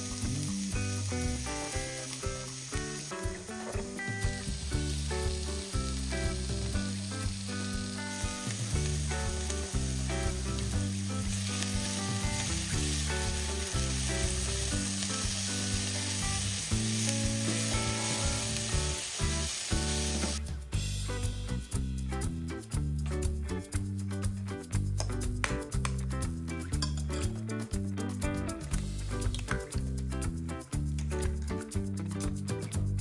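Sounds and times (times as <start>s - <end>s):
vegetables sizzling in frying pan: 0.0s - 20.5s, 28.7s - 29.8s
background music with bass line: 0.0s - 33.0s.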